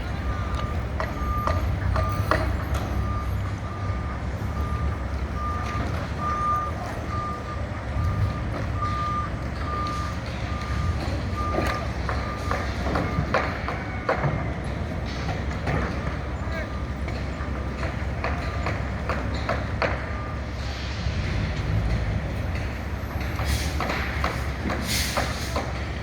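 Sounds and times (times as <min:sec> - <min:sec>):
diesel engine rumble: 0:00.0 - 0:26.0
backup alarm beeping: 0:00.2 - 0:13.6.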